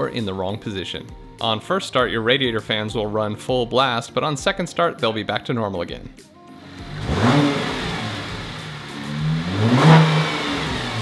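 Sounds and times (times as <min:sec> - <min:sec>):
car engine revving: 0:06.6 - 0:11.0
car engine starting and idling: 0:06.6 - 0:11.0.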